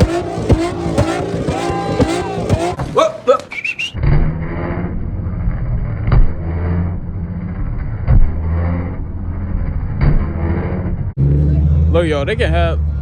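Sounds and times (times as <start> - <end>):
car engine at high revs: 0.0 - 2.9, 4.0 - 13.0
sharp bangs: 0.0 - 3.0.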